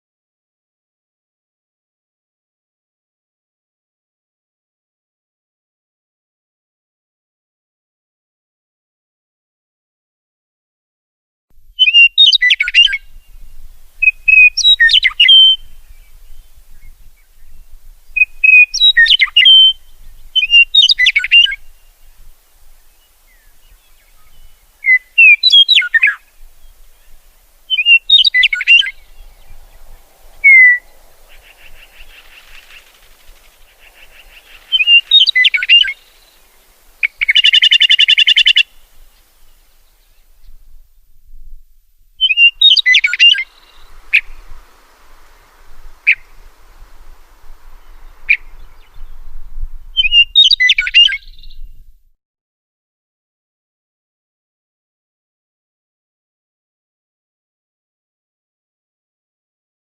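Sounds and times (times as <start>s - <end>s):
songbird singing: 11.5s - 52.1s
buzzy rapid bird trill: 27.7s - 38.7s.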